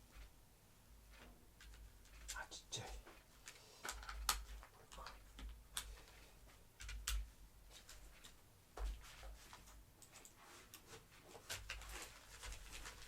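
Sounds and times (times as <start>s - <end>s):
plastic parts clicking and knocking: 1.1s - 2.4s, 3.4s - 6.0s, 6.8s - 7.3s.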